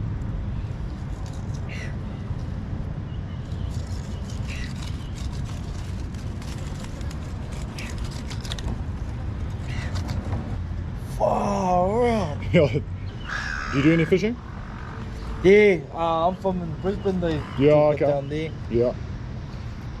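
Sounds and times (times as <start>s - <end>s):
steady low rumble: 0.0s - 20.0s
bird giving short calls: 13.2s - 15.5s.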